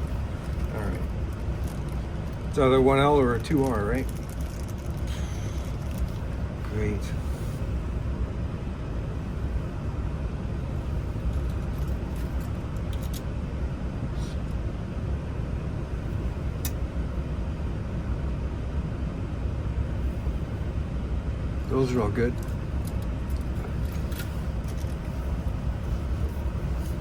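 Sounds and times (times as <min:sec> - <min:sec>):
vehicle engine rumble: 0:00.0 - 0:27.0
faint clicks of lock parts: 0:11.3 - 0:13.3, 0:22.4 - 0:25.1.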